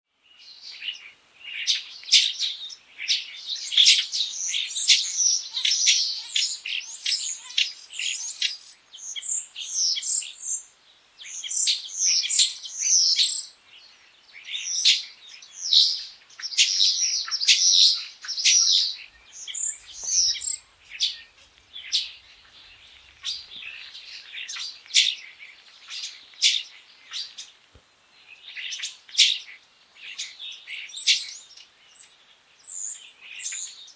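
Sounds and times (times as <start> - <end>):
starling singing: 15.7 - 27.4.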